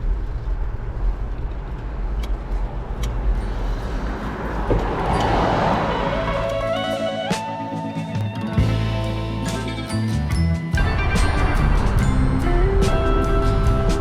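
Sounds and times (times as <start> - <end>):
wind rumbling on microphone: 0.0 - 6.6
vehicle passing: 1.8 - 7.6.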